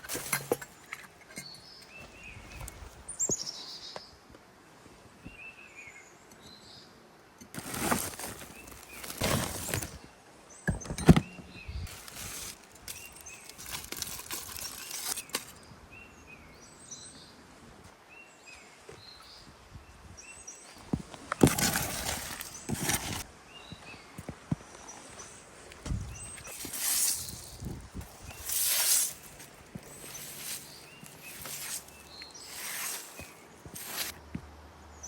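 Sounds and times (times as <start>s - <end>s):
rustling and scraping: 0.0s - 3.5s, 7.5s - 10.1s, 10.7s - 15.6s, 20.7s - 23.3s, 24.9s - 34.2s
small birds chirping: 0.6s - 4.2s, 7.6s - 17.4s, 18.1s - 34.3s.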